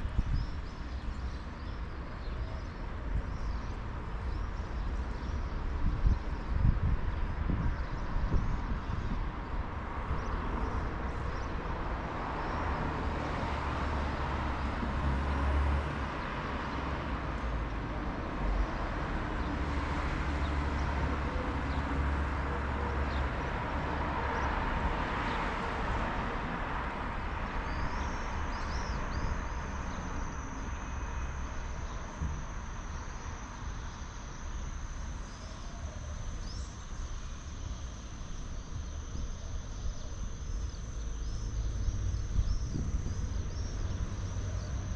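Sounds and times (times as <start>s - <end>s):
rushing noise with low rumble: 3.1s - 44.9s
high-pitched insect drone: 27.6s - 44.9s.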